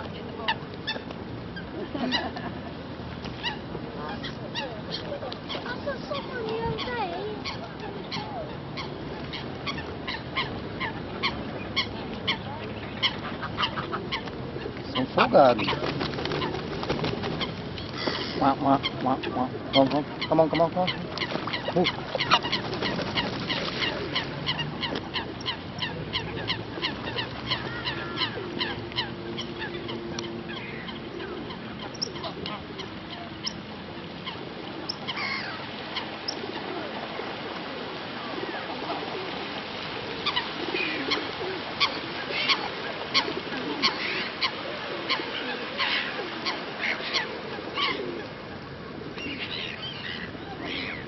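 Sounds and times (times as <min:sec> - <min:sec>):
geese honking: 0:17.4 - 0:36.4.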